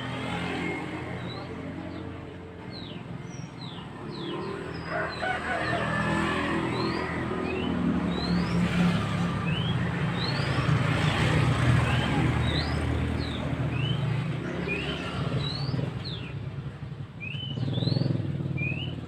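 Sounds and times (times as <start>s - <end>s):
bird whistling song: 6.8s - 16.4s, 17.2s - 19.0s.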